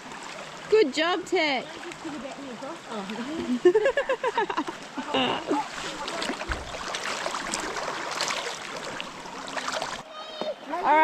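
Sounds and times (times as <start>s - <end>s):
water splashing and running: 0.0s - 11.0s.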